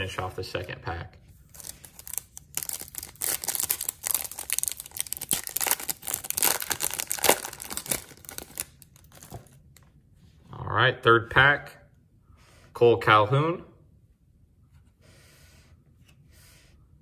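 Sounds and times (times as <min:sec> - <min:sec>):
wrapper crinkling and tearing: 0:01.5 - 0:09.6.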